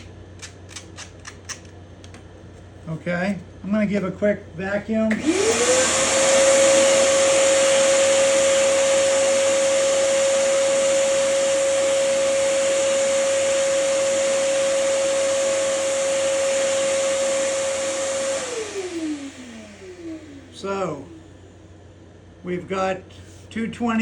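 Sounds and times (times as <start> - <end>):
vacuum cleaner running: 5.1 - 21.8.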